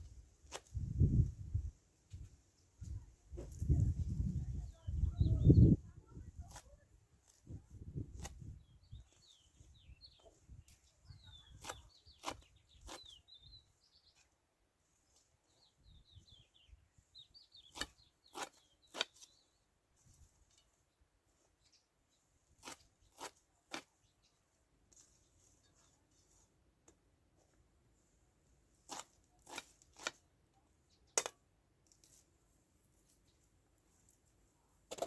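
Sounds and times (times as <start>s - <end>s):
small birds chirping: 2.8s - 26.6s, 28.9s - 31.5s.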